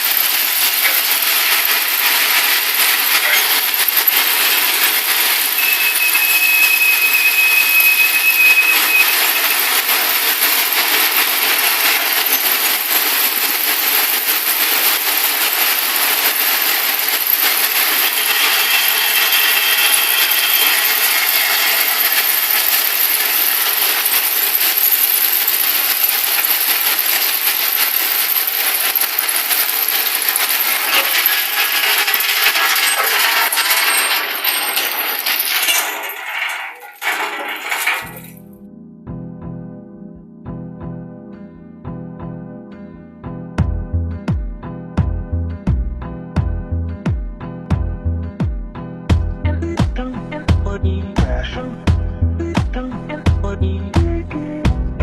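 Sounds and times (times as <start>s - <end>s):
rattle and clatter of stone: 0.0s - 38.5s
brief high squeal: 5.6s - 9.4s.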